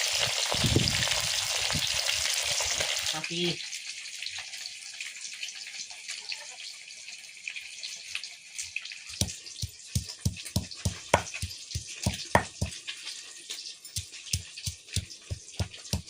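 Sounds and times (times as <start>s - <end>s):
fish sizzling in oil: 0.0s - 16.0s
fast dull knocks: 10.0s - 12.7s.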